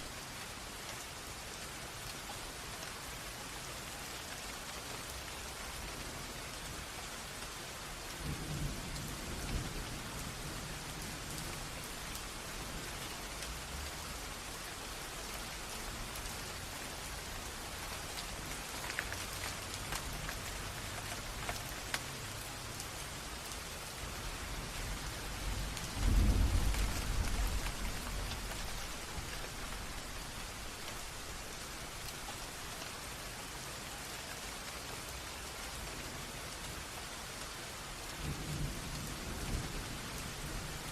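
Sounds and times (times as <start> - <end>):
steady rain: 0.0 - 40.9
running stream: 11.6 - 38.1
thunder rumbling: 24.7 - 30.0.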